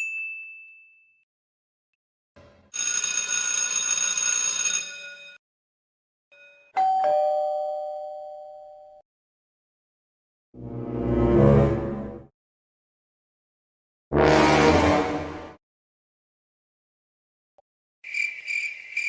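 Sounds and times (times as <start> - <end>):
two-tone doorbell ding-dong: 6.4 - 9.0.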